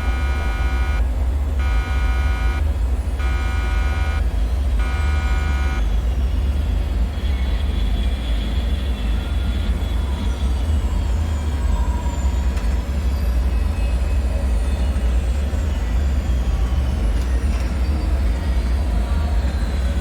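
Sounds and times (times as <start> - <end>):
alarm-like buzzing tone: 0.0 - 6.0
deep low machinery rumble: 0.0 - 20.0.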